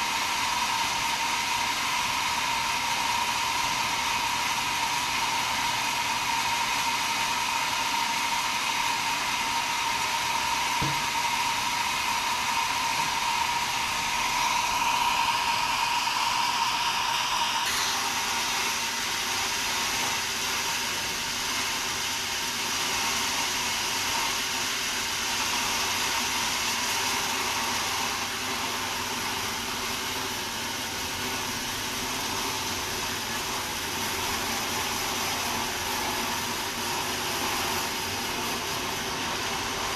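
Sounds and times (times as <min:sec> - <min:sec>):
sawmill machinery running: 0:00.0 - 0:39.9
high-pitched whine: 0:11.6 - 0:18.8.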